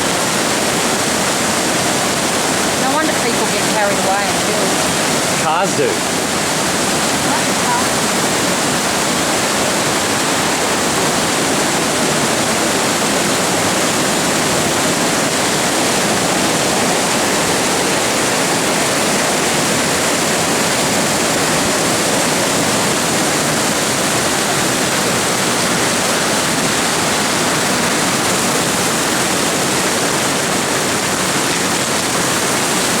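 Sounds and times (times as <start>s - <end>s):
floodwater rushing roar: 0.0s - 33.0s.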